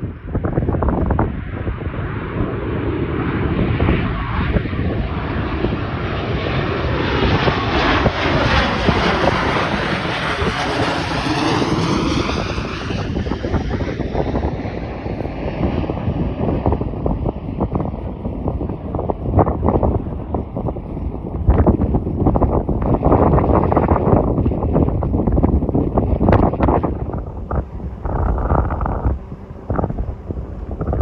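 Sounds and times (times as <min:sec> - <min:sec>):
airliner engine rushing overhead: 0:00.0 - 0:31.0
wind buffeting microphone: 0:00.0 - 0:31.0.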